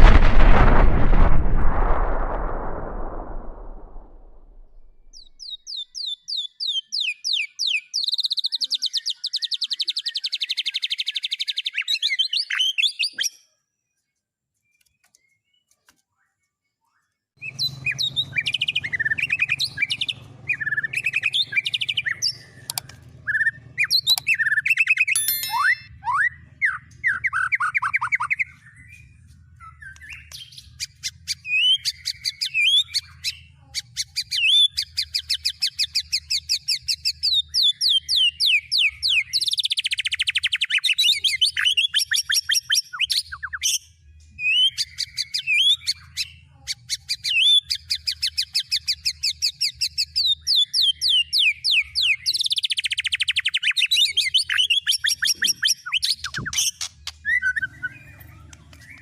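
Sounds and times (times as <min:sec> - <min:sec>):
songbird chirps and trills: 0:05.1 - 0:43.8.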